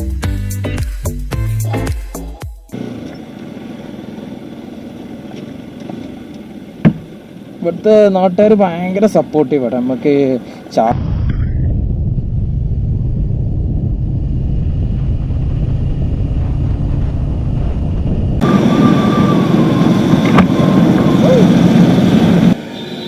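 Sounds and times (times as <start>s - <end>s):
motorcycle engine and wind: 12.0s - 22.6s.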